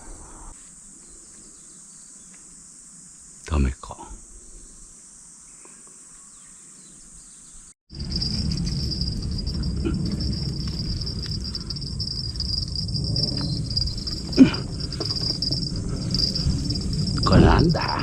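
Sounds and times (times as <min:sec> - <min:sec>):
insects trilling: 0:00.0 - 0:18.0
low rumbling noise: 0:07.9 - 0:18.0.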